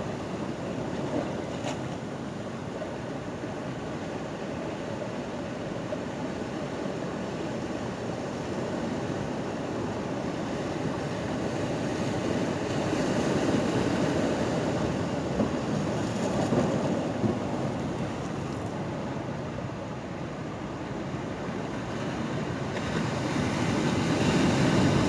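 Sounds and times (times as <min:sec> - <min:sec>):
ocean waves washing against pier: 0:00.0 - 0:25.0.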